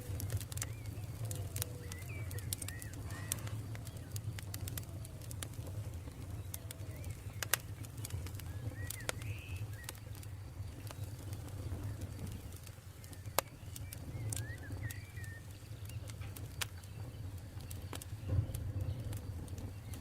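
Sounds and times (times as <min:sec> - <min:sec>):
bird chirping: 0:00.0 - 0:05.0, 0:05.7 - 0:20.0
campfire crackling and popping: 0:00.0 - 0:20.0.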